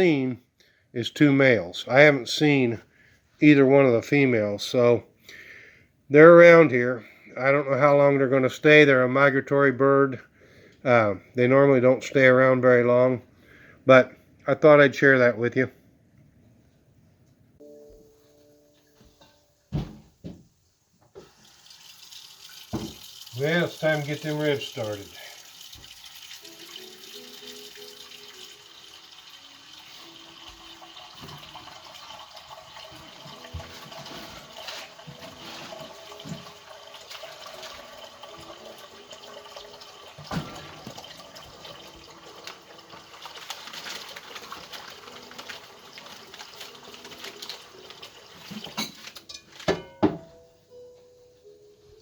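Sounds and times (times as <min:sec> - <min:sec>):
water running from tap: 0:21.2 - 0:48.9.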